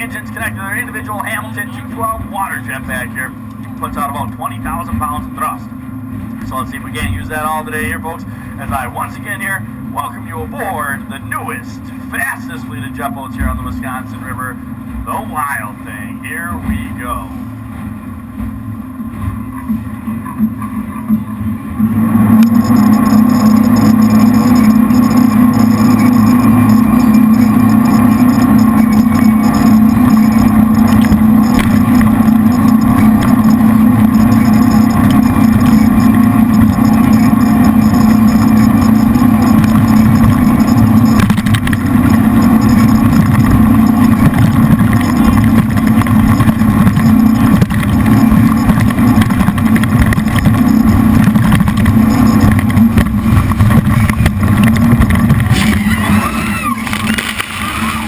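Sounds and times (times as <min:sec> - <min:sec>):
boat engines running hard: 0:00.0 - 0:58.0
wavering high-pitched sounds: 0:22.0 - 0:53.3, 0:53.9 - 0:58.0.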